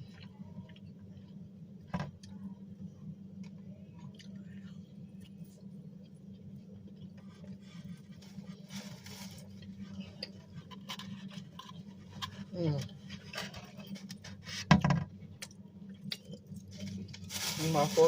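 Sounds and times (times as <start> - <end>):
steady low hum: 0.0 - 18.0
person chewing food: 3.4 - 7.6, 15.3 - 17.2.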